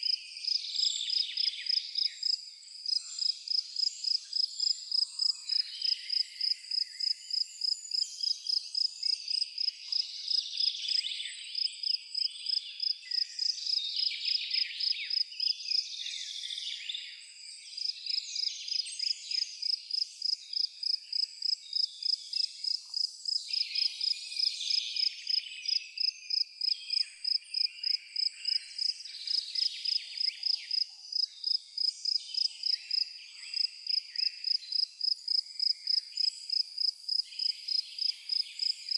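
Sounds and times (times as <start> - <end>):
cricket chirping: 0.0 - 11.0, 11.6 - 13.8, 14.5 - 15.5, 17.3 - 38.9
birds singing and twittering: 0.0 - 38.9.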